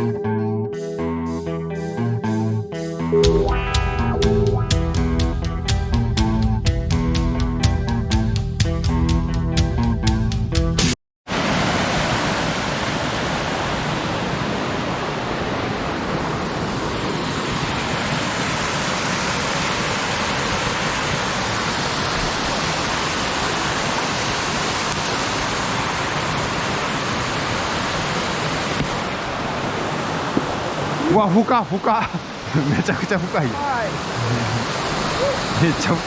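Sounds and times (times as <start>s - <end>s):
water rushing over rocks: 11.3s - 36.0s.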